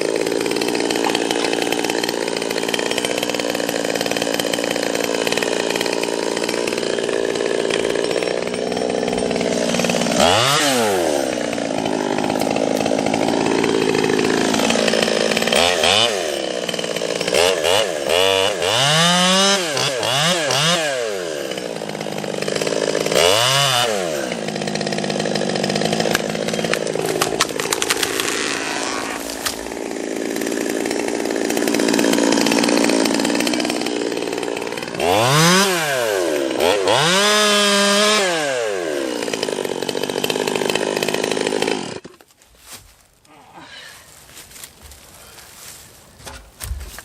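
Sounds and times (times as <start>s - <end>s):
chainsaw revving and cutting: 0.0s - 42.2s.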